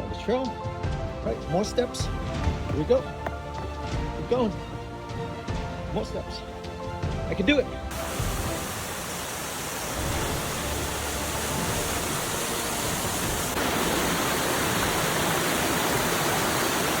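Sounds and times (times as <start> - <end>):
waterfall roaring: 7.9 - 17.0.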